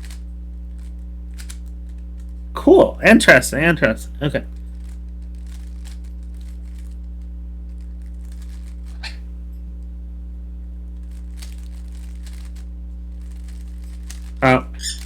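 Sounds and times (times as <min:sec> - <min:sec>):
steady low hum: 0:00.0 - 0:15.0
plastic puzzle cube clicking: 0:00.8 - 0:01.7, 0:13.3 - 0:15.0.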